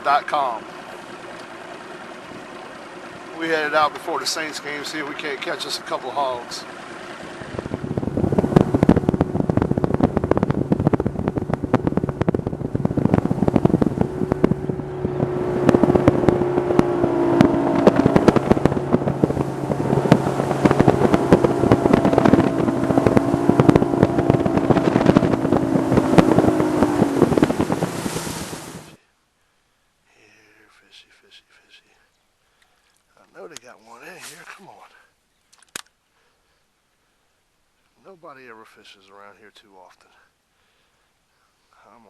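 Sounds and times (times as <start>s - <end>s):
outboard motor running: 0.0s - 29.0s
wind buffeting microphone: 6.6s - 29.0s.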